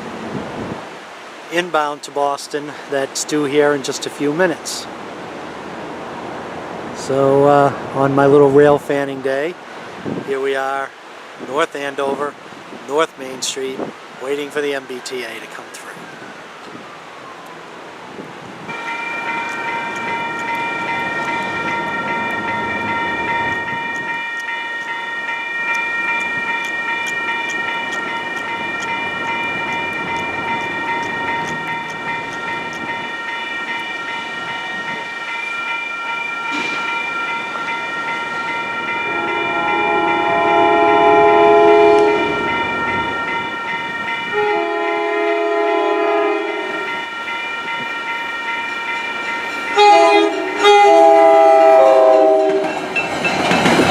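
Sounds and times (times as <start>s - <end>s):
crossing warning bell ringing: 18.7s - 53.9s
train air horn blasts: 38.7s - 47.2s, 49.7s - 52.8s.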